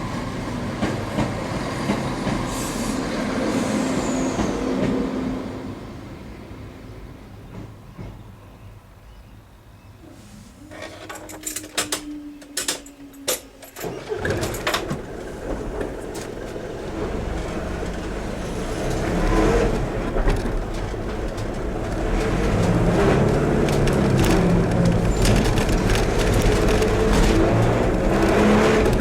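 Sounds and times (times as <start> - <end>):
vehicles crossing level crossing: 10.4 - 29.0.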